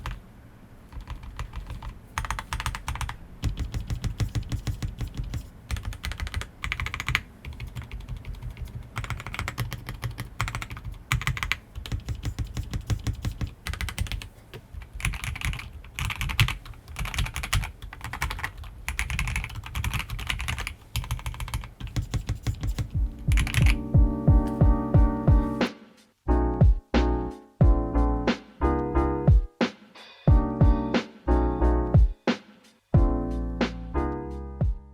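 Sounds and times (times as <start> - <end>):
mechanical keyboard typing: 0.0 - 0.2, 0.9 - 23.9
piano music: 22.8 - 32.4, 33.0 - 34.9.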